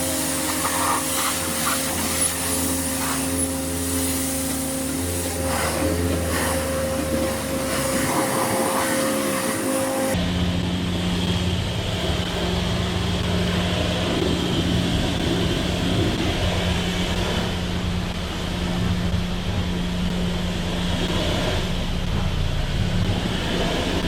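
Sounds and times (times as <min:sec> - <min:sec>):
pressure washer motor hum: 0:00.0 - 0:10.2
water jet hissing: 0:00.0 - 0:10.2.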